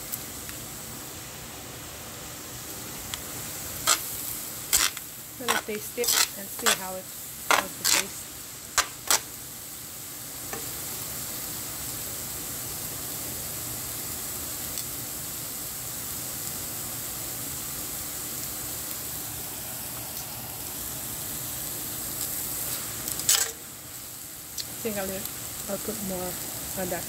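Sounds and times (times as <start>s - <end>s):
noodles sizzling in a pan: 0.0s - 27.0s.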